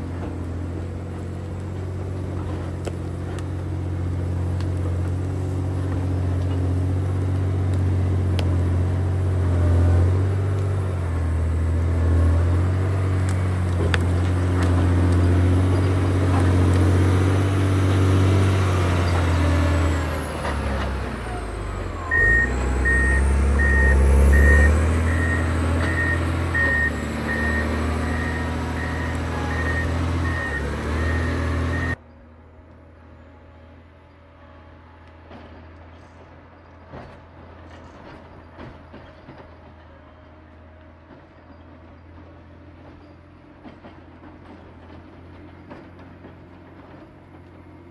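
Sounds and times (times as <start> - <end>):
diesel engine running: 0.0 - 47.9
reversing alarm beeping: 21.4 - 32.0.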